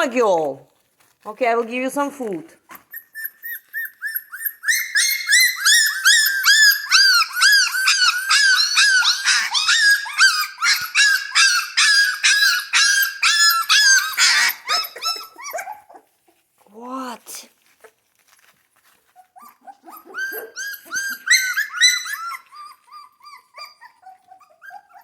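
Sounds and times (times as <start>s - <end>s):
puppies yelping: 2.7s - 16.2s, 19.1s - 25.0s.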